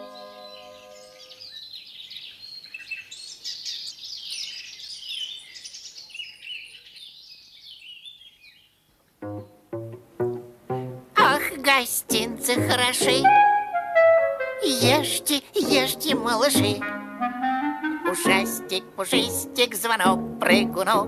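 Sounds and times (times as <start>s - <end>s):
held music chord: 0.0s - 1.4s, 9.2s - 21.0s
birds chirping and twittering: 0.0s - 9.6s
plucked bass notes: 9.2s - 13.7s.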